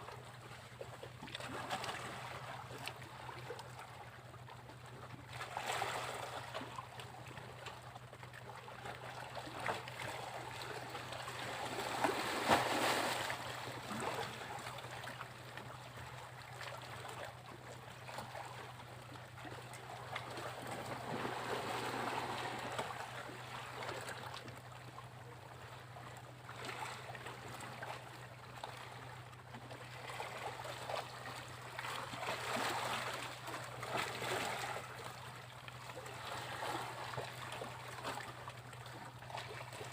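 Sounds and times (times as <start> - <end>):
sea waves breaking on beach: 11.3 - 14.4, 20.6 - 23.3.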